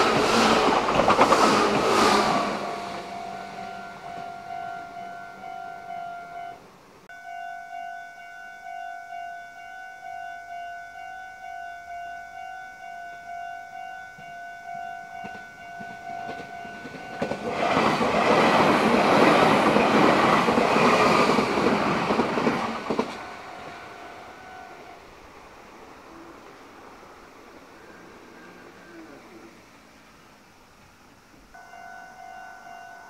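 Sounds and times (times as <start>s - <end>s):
electric train passing: 0.0s - 33.0s
level crossing bell ringing: 2.7s - 17.5s, 31.6s - 33.0s.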